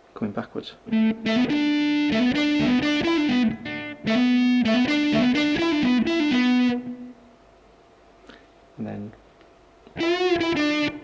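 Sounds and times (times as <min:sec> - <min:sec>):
distorted electric guitar run: 0:00.9 - 0:07.1, 0:10.0 - 0:11.0.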